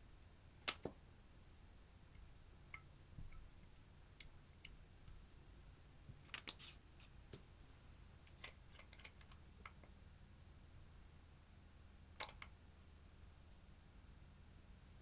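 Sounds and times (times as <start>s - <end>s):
faint small clicks and crackles: 6.1s - 7.5s, 8.2s - 10.0s, 12.2s - 12.6s.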